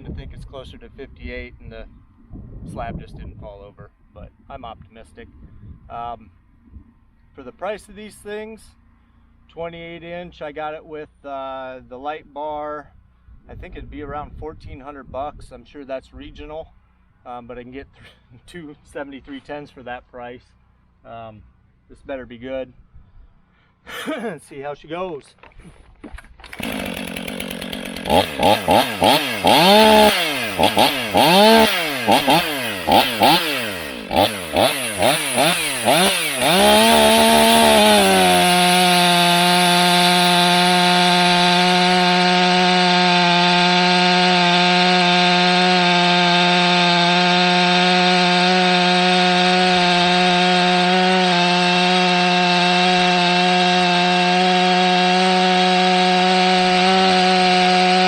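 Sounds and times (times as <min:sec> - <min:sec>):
chainsaw cutting wood: 0:25.4 - 0:58.0
chainsaw engine revving: 0:26.3 - 0:58.0.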